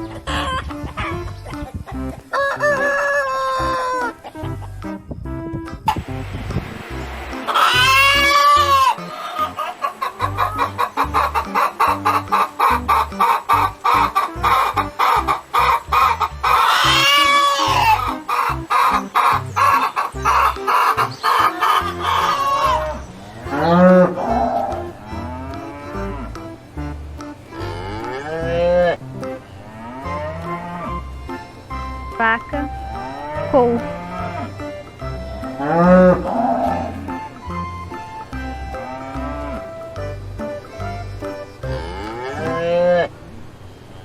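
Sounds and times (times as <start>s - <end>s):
clucking calls: 0.0s - 43.5s
background music: 0.0s - 43.7s
cattle mooing: 7.5s - 13.2s, 13.9s - 19.0s, 21.4s - 26.5s, 27.5s - 29.0s, 29.6s - 31.1s, 32.9s - 34.7s, 35.5s - 37.3s, 38.7s - 39.8s, 41.6s - 43.1s.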